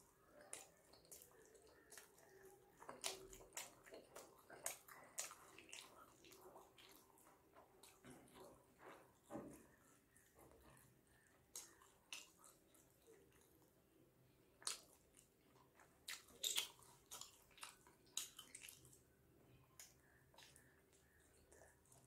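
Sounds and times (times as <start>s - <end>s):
wet chewing: 0.0s - 22.0s
mouth clicks and smacks: 11.5s - 13.6s, 14.6s - 19.0s.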